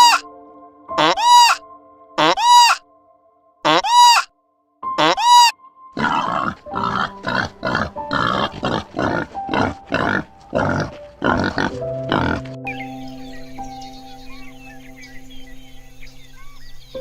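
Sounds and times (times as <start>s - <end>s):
pig high arching call: 0.0s - 0.3s, 1.0s - 1.6s, 2.2s - 2.8s, 3.7s - 4.3s, 5.0s - 12.4s
pig grunting: 1.0s - 1.6s, 5.0s - 12.6s.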